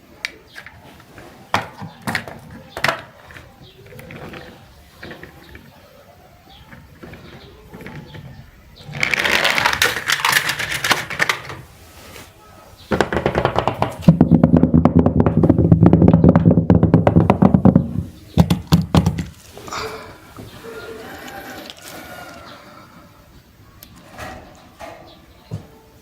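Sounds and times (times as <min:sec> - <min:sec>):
toy vehicles rattling down plastic slide: 0:00.6 - 0:11.7
sharp knocks: 0:12.9 - 0:19.3.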